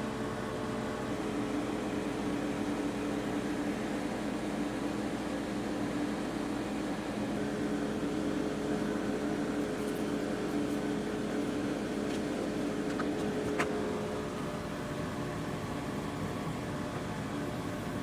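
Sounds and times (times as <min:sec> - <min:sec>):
steady mechanical hum: 0:00.0 - 0:18.0.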